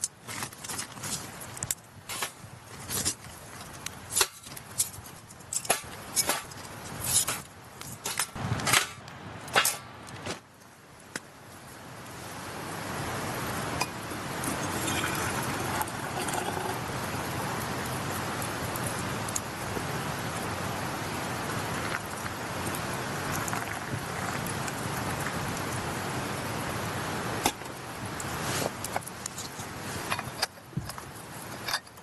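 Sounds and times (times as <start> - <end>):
charcoal sticks clinking: 3.6 - 8.9, 28.8 - 32.0.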